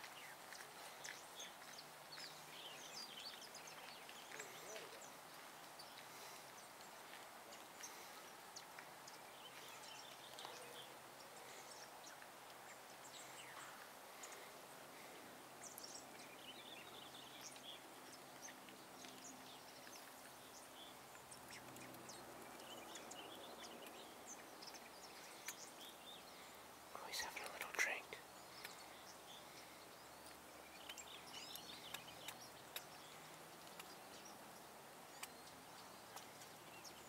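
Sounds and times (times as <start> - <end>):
small ticks: 0.0 - 10.7, 15.6 - 37.0
faint bird chirps: 5.8 - 34.4.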